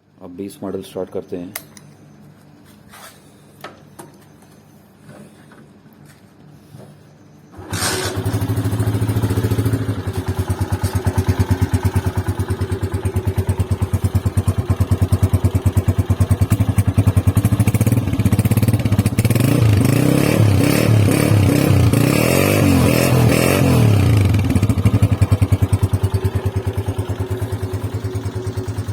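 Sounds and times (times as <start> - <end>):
motorcycle engine starting and idling: 7.5 - 28.9.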